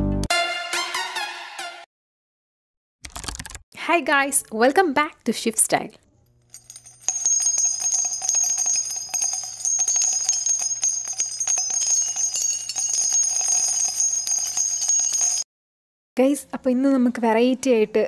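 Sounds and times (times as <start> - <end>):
bells jingling and ringing: 6.5 - 15.5.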